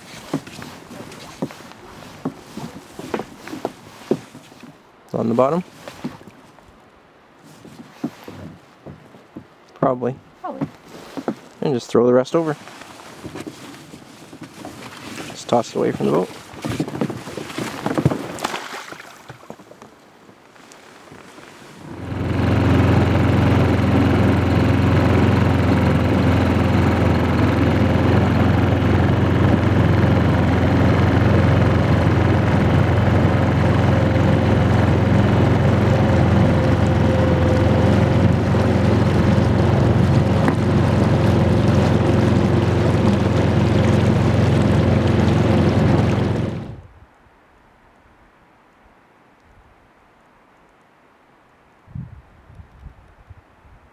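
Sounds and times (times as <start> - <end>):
boat engine running: 0.0 - 6.3, 9.8 - 18.5, 21.5 - 47.0.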